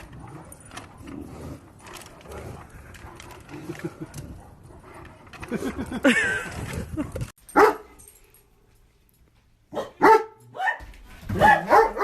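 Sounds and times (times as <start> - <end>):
dog barking: 7.6 - 7.9, 9.7 - 12.0.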